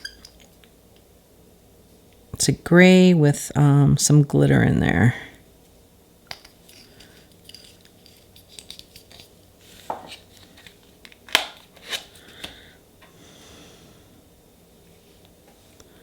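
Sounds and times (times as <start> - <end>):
small tools clicking and scraping: 6.4 - 9.3.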